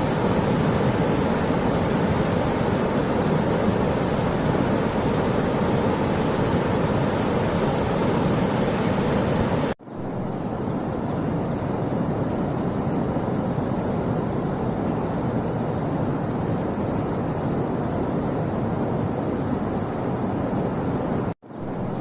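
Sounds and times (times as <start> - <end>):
waterfall rushing water: 0.0 - 9.8.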